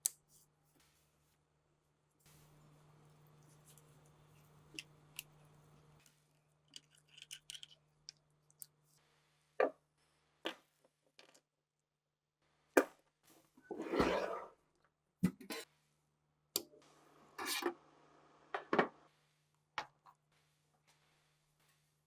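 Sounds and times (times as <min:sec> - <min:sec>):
faint steady hum: 0:02.0 - 0:09.5
small parts clicking and knocking: 0:06.6 - 0:08.8.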